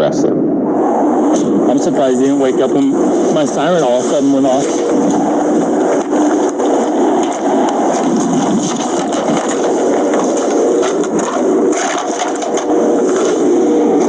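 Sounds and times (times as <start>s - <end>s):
faint hum: 0.0s - 14.0s
car engine and road noise: 0.8s - 14.0s.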